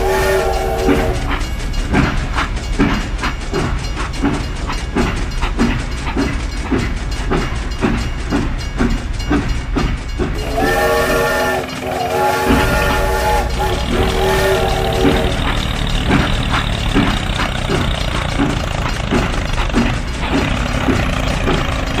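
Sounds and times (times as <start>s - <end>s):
multi-tone train horn: 0.0s - 1.4s, 10.4s - 15.6s
train wheels clickety-clack: 0.0s - 22.0s.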